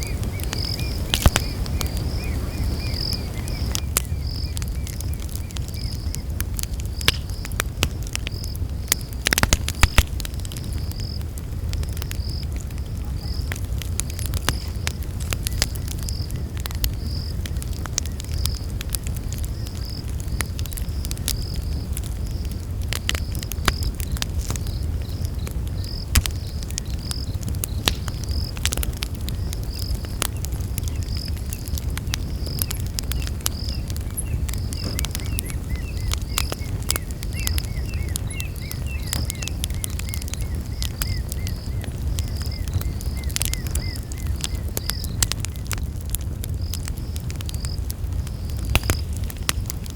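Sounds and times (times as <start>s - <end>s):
insect chirping in pulses: 0.0s - 6.2s, 30.8s - 45.7s
campfire crackling and popping: 0.0s - 49.9s
low rumble of flames: 0.0s - 49.9s.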